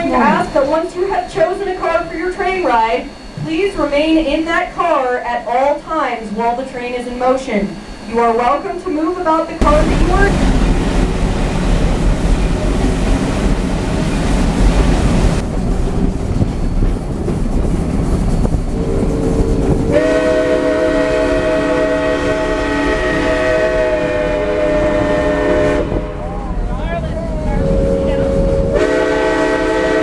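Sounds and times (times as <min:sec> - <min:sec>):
steam locomotive chime whistle: 0:00.0 - 0:10.6, 0:18.8 - 0:26.4, 0:27.6 - 0:30.0
train rumbling along track: 0:00.0 - 0:30.0.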